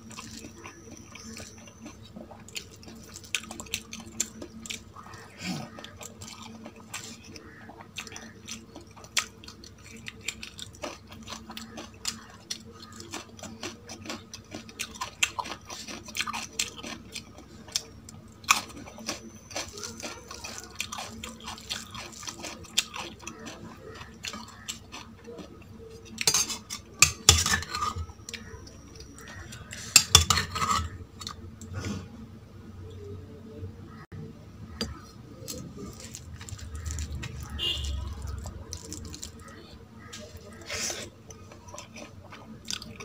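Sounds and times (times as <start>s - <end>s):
chewing: 0.0s - 32.1s, 34.7s - 43.0s
food and plate clinking: 26.1s - 31.3s.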